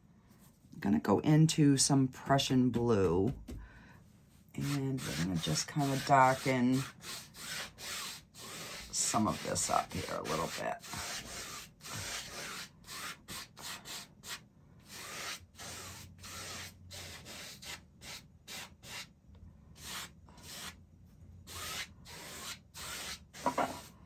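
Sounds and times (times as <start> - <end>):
paintbrush scrubbing on canvas: 4.6 - 19.1, 21.5 - 24.0.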